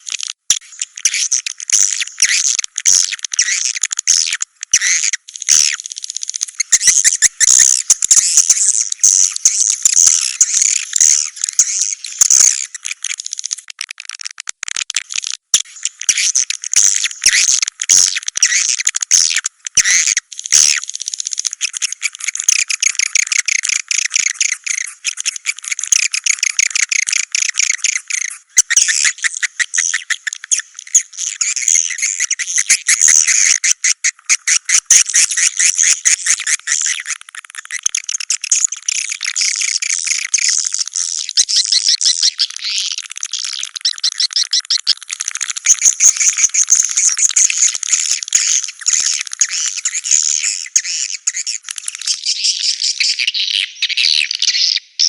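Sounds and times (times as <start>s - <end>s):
swiftlet calls twittering: 0.0s - 13.6s, 15.2s - 54.5s.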